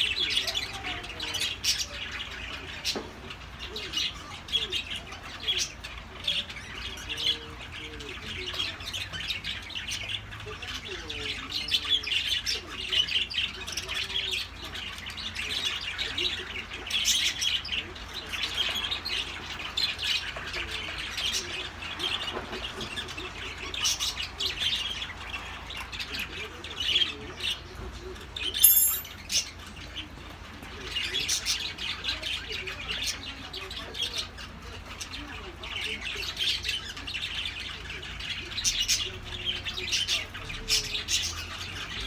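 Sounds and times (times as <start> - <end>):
birds chirping and squawking: 0.0 - 42.0.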